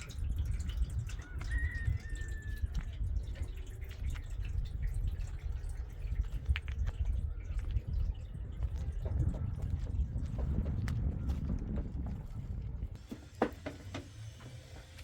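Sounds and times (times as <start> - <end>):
water dripping and splashing: 0.0 - 11.1
steady low rumble: 2.6 - 13.0.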